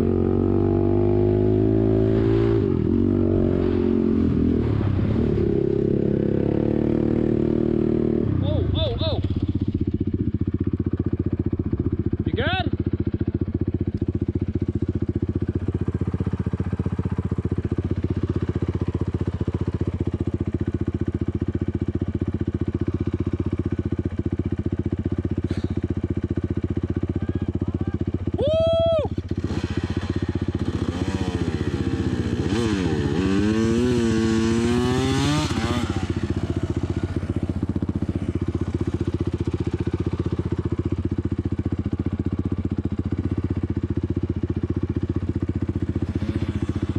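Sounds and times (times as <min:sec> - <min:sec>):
engine revving: 0:00.0 - 0:09.0, 0:29.3 - 0:37.4, 0:46.0 - 0:46.9
off-road vehicle engine running: 0:00.0 - 0:46.9.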